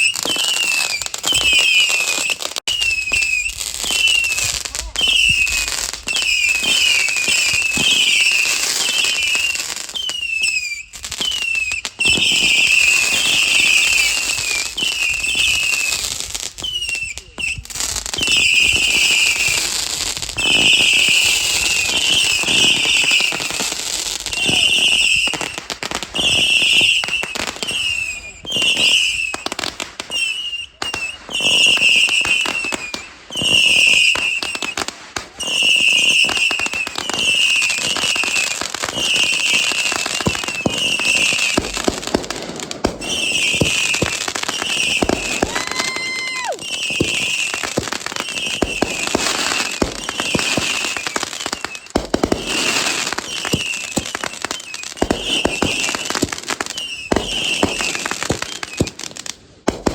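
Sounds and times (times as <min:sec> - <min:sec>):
short shrill firework notes: 0:00.0 - 0:16.0, 0:43.0 - 0:59.0
firework whistle: 0:00.0 - 0:59.9
fireworks popping and crackling: 0:00.0 - 0:59.9.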